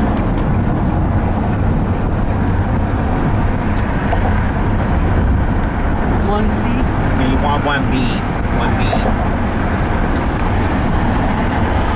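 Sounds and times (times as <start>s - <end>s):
car cabin road and engine noise: 0.0s - 11.9s.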